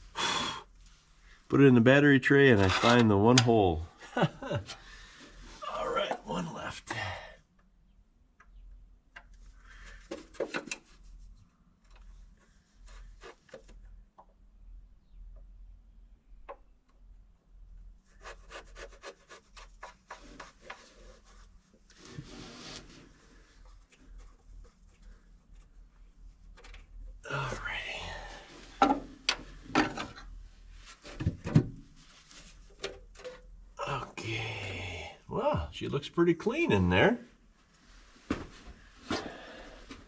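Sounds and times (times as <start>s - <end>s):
hand tool scraping and clicking on metal: 2.5s - 3.5s.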